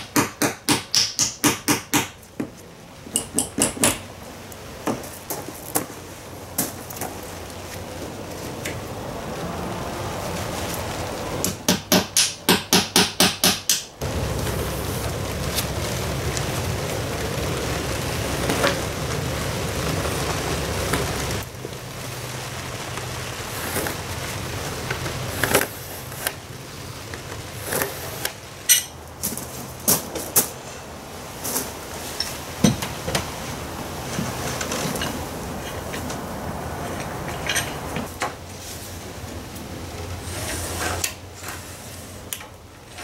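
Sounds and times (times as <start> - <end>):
hammer striking a tool: 0.0 - 2.2, 11.5 - 13.9.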